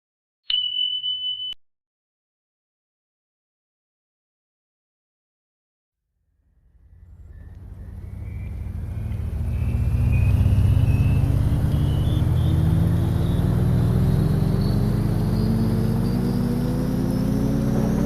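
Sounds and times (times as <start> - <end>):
thin whine rising in pitch: 6.4 - 18.0
vehicle engine speeding up: 6.4 - 18.0.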